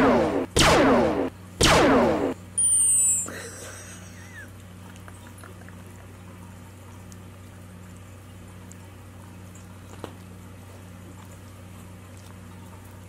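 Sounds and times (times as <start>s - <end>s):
steady low hum: 0.0s - 13.0s
dog licking and smacking: 4.6s - 13.0s.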